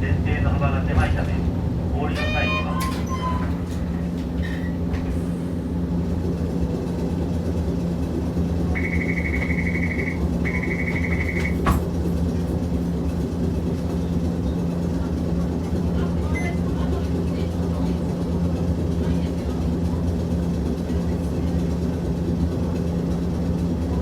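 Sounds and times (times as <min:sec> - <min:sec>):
streetcar motor and wheel hum: 0:00.0 - 0:24.0
short buzzer tones: 0:08.8 - 0:11.6.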